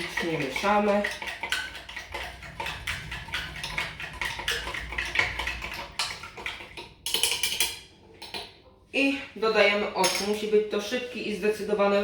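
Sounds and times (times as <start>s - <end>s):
spoon clinking against container: 6.0s - 8.5s, 10.0s - 10.5s.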